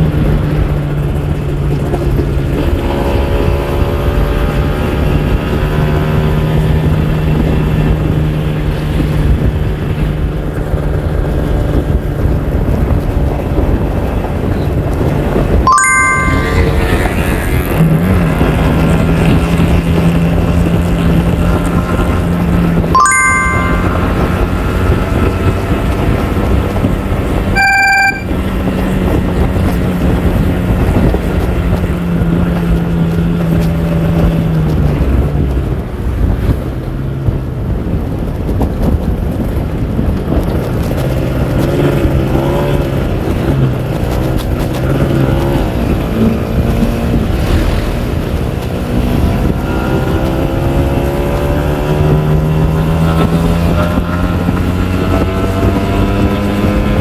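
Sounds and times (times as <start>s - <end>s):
short bright tone: 15.7s - 17.4s, 23.0s - 24.9s, 27.6s - 28.3s
wind buffeting microphone: 28.4s - 57.0s.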